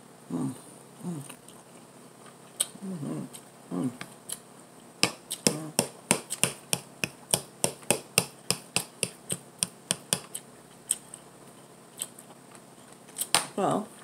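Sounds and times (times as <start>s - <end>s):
closed-mouth hum: 0.0s - 11.2s.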